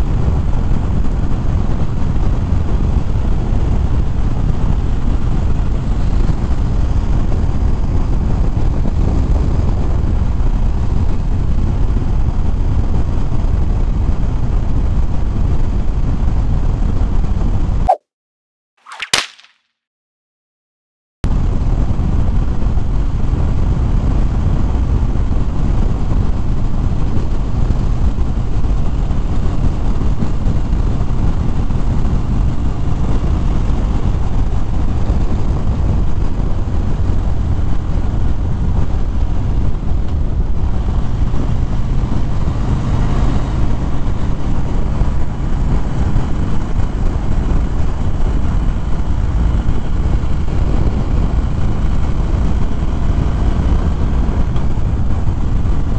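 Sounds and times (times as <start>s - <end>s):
wind rumble on microphone: 0.0s - 17.8s, 21.3s - 55.9s
motorcycle engine drone: 21.4s - 55.9s.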